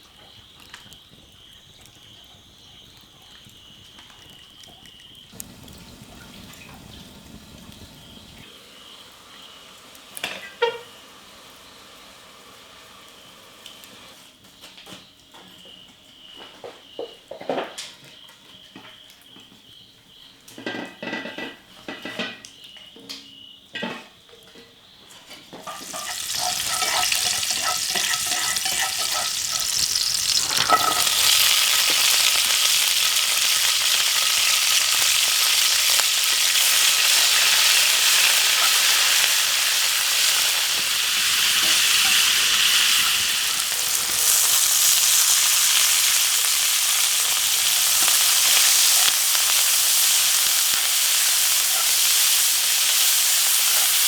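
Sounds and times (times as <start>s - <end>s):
food sizzling in a pan: 0.0s - 14.3s, 25.6s - 54.0s.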